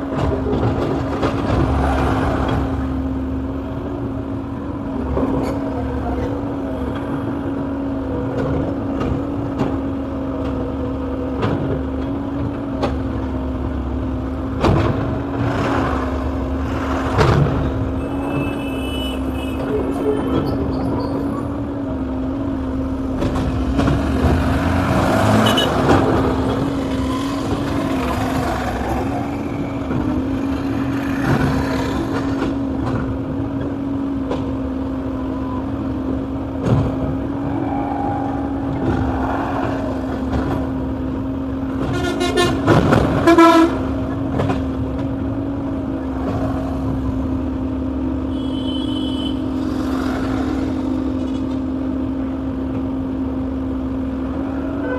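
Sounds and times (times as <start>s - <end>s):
excavator engine and hydraulics: 0.0s - 54.9s
vehicle horn toot: 18.0s - 20.3s, 25.4s - 25.8s, 41.9s - 42.6s, 43.2s - 43.8s, 48.3s - 49.5s.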